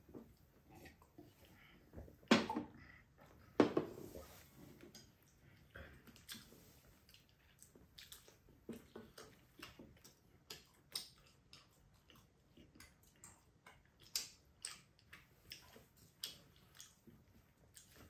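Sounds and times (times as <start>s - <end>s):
mouths chewing with clicks and smacks: 4.7s - 18.0s.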